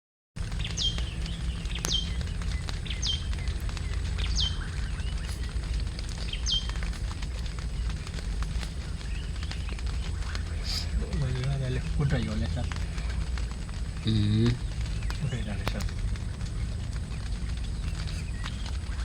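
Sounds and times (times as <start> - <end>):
bird whistling: 0.4 - 11.4, 17.4 - 19.0
low rumble: 0.4 - 19.0.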